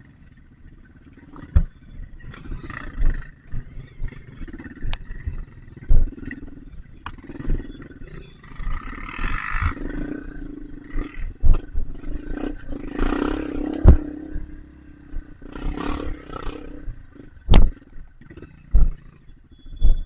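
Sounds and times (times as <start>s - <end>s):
dirt bike engine revving: 0.0s - 20.0s
sharp knocks: 17.5s - 17.8s.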